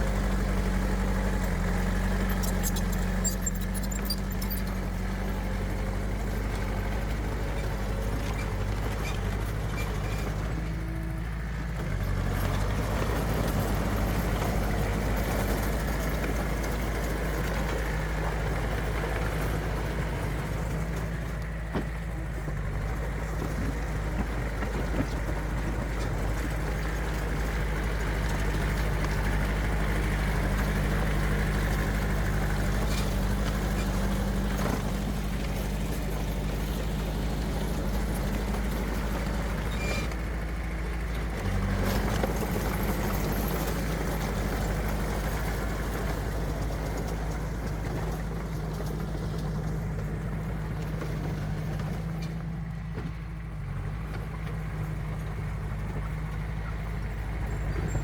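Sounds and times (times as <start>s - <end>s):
heavy diesel engine humming: 0.0s - 58.0s.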